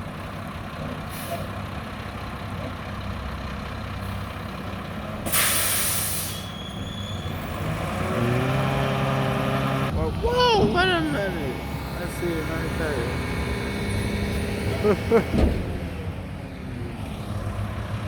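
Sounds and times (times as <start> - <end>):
garbage truck diesel engine: 0.0 - 18.0
air brake hiss: 5.3 - 6.8.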